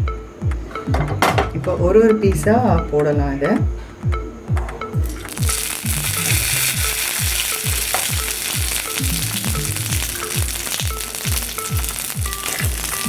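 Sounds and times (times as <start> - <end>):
steady musical beat: 0.0 - 13.0
fish sizzling in hot oil: 5.0 - 13.0.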